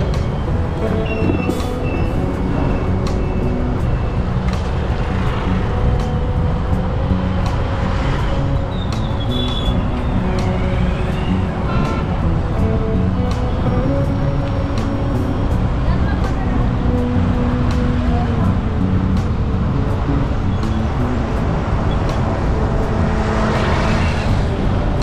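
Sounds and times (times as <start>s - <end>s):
background music: 0.0s - 25.0s
road traffic passing: 0.0s - 25.0s.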